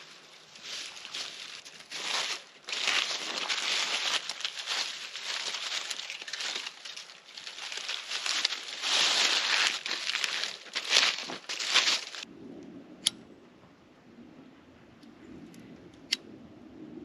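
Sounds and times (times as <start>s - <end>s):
dry twigs rustling and crackling: 0.0s - 12.3s.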